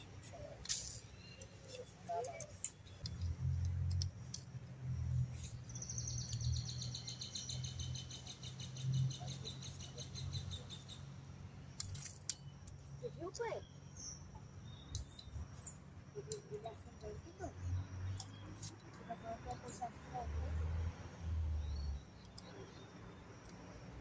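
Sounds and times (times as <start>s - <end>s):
scattered clicks: 22.2s - 22.6s.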